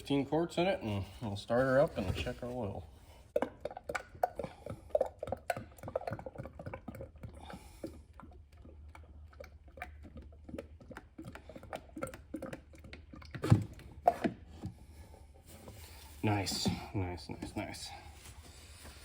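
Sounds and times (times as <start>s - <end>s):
oil glugging through funnel: 0.0s - 19.0s
plastic jug clicks and knocks: 11.8s - 14.8s.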